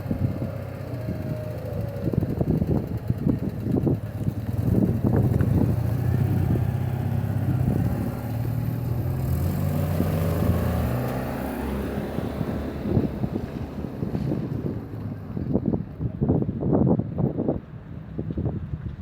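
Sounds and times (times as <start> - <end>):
vehicle engine running: 0.0 - 16.1
wind buffeting microphone: 0.0 - 19.0.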